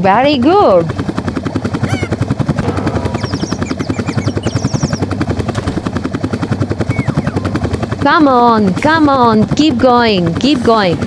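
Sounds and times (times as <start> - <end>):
helicopter rotor chopping: 0.0 - 11.0
faint high chirps: 3.2 - 5.0.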